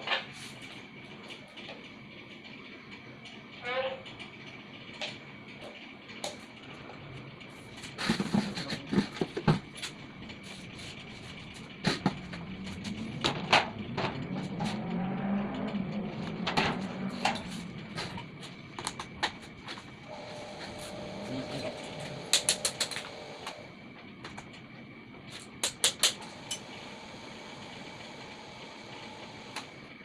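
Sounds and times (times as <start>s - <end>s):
low wavering hum: 4.8s - 25.5s
tools clicking and knocking on parts: 22.3s - 23.2s, 25.6s - 26.6s.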